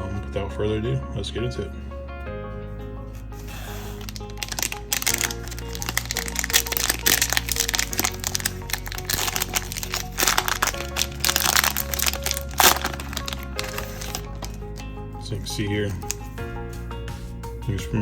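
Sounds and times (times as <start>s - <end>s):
background music: 0.0s - 18.0s
plastic wrapper crinkling: 3.1s - 15.0s, 15.7s - 16.4s
sharp plastic crack: 3.3s - 14.9s, 15.9s - 16.4s.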